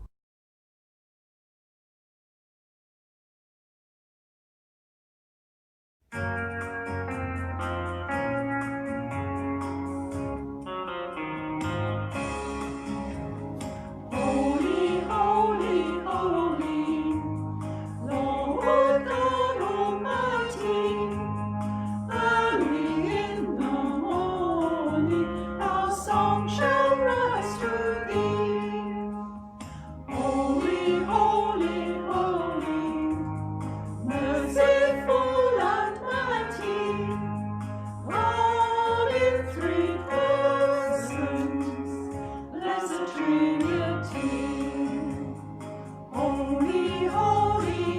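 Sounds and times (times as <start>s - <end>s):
instrumental accompaniment: 6.2s - 47.9s
group singing a hymn: 14.1s - 45.5s, 46.1s - 47.9s.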